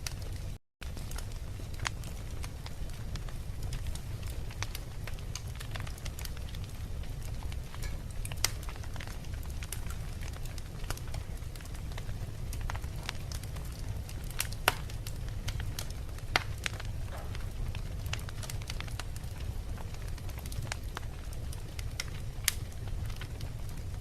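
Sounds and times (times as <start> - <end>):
fire crackling and popping: 0.0 - 24.0
flames rumbling: 0.0 - 24.0.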